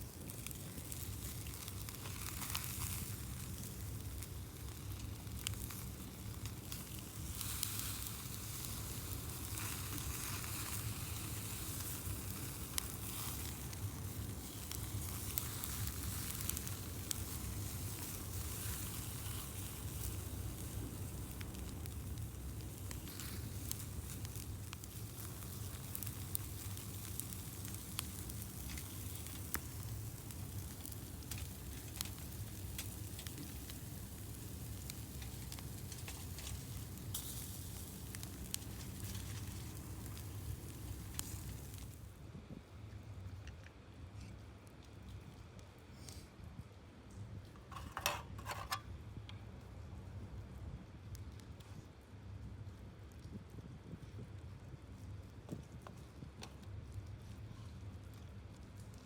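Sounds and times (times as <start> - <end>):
fire popping and crackling: 0.0 - 42.1, 47.1 - 59.0
meat sizzling: 0.2 - 41.9.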